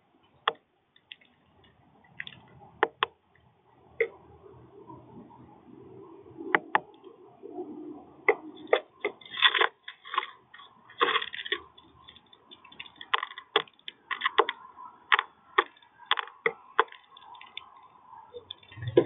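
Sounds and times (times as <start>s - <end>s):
birds pecking seed: 0.2s - 19.0s.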